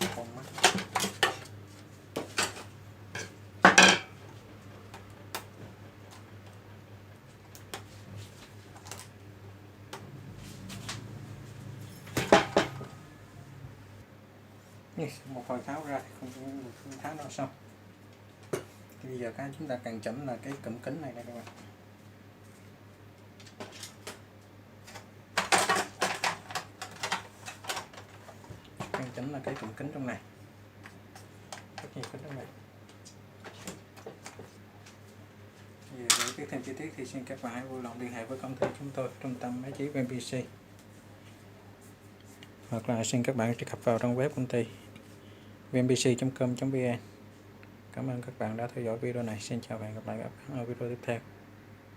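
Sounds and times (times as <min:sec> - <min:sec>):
loud clatter of parts: 0:11.8 - 0:12.9, 0:24.8 - 0:29.7.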